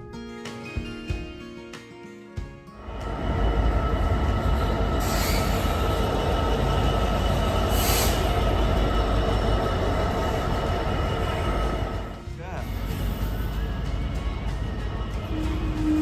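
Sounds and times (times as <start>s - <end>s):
high whine or squeal: 2.8s - 16.0s
train rumble: 2.8s - 16.0s
short hisses: 7.7s - 8.4s.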